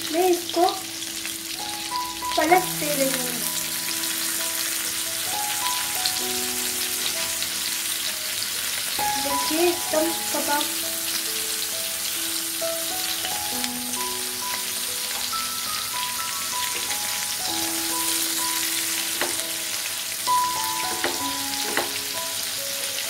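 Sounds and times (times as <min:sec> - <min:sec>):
kebabs sizzling in a pan: 0:00.0 - 0:23.0
soft background music: 0:00.0 - 0:23.0
spatula clicking against pan: 0:20.9 - 0:22.0.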